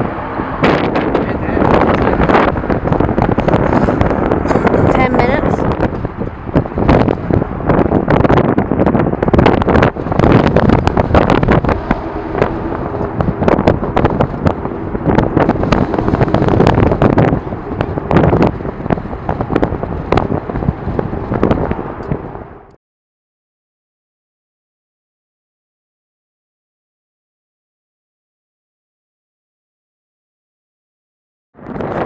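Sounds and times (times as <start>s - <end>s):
wind buffeting microphone: 0.0s - 22.8s, 31.6s - 32.0s.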